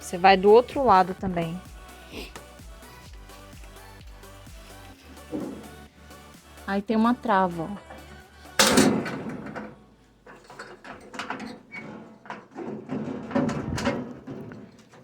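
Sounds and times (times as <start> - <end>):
fireplace parts scraping: 4.5 - 15.0.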